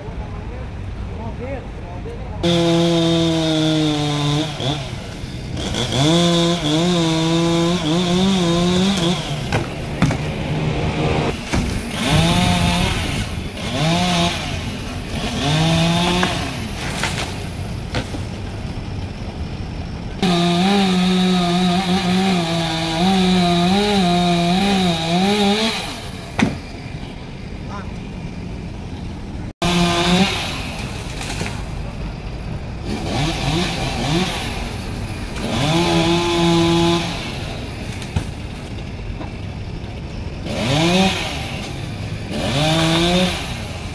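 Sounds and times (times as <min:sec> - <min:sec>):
chainsaw cutting wood: 0:02.4 - 0:18.3, 0:20.2 - 0:26.7, 0:29.6 - 0:31.6, 0:32.8 - 0:38.4, 0:40.4 - 0:43.9.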